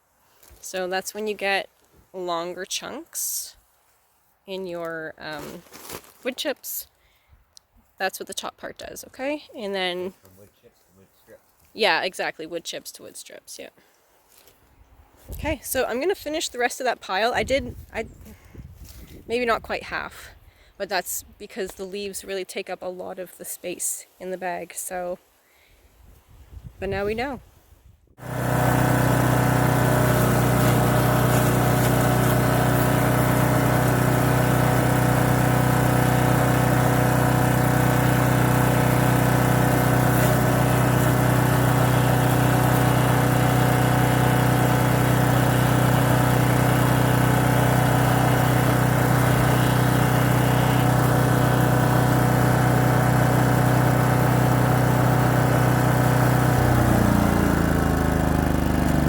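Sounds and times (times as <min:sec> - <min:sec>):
wood chipper engine running: 0:28.2 - 0:59.0.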